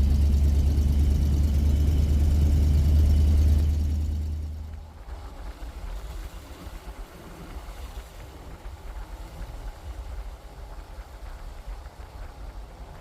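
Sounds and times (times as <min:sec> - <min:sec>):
truck engine rumble: 0:00.0 - 0:06.2.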